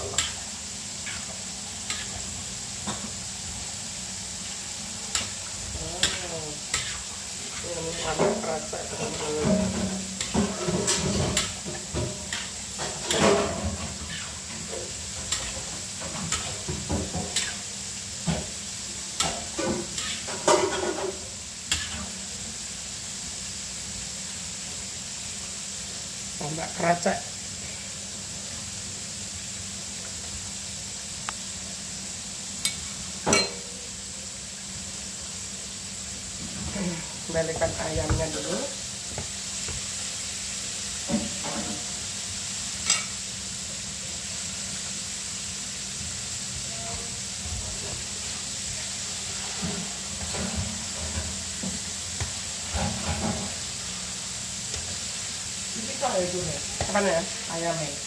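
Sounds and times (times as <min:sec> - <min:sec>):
chicken frying in hot oil: 0:00.0 - 0:58.0
food sizzling in a wok: 0:00.0 - 0:58.0
low burner hum: 0:00.0 - 0:58.0.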